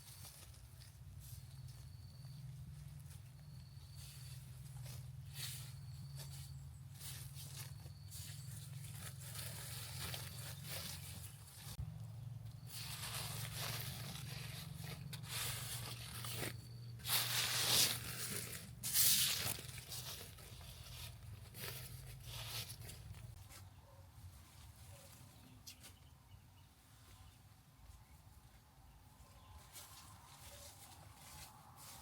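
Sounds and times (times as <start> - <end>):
rustling and tearing: 12.7 - 23.2.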